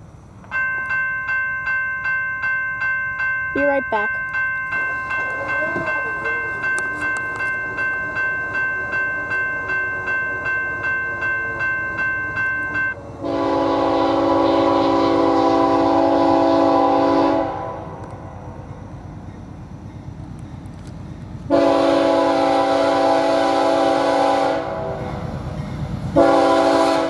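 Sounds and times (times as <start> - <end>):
train rumbling past: 0.0 - 27.0
crossing bell ringing: 0.4 - 27.0
locomotive air horn blast: 13.2 - 18.1, 21.5 - 25.2, 26.2 - 27.0.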